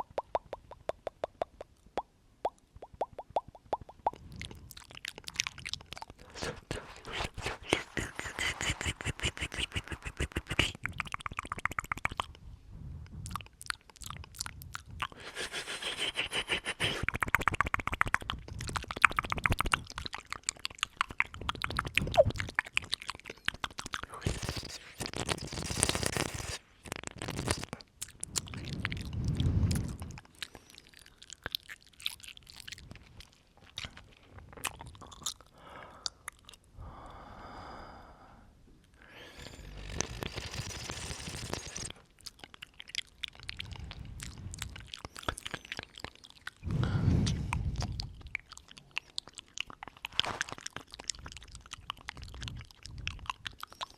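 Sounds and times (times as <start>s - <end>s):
wet lip and tongue clicks: 0.0s - 12.4s, 13.1s - 36.8s, 38.8s - 53.9s
breaths blown onto microphone: 46.6s - 48.0s.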